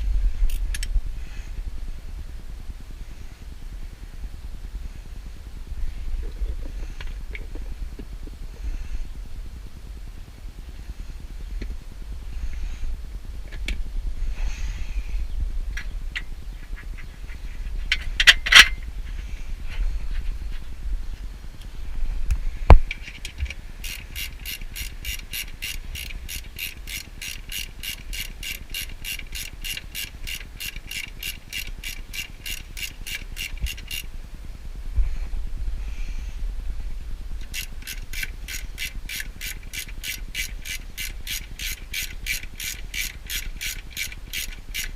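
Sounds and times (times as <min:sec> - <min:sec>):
ratchet wrench clicking: 0:00.5 - 0:00.9, 0:17.9 - 0:18.8, 0:22.8 - 0:34.1, 0:37.4 - 0:44.9.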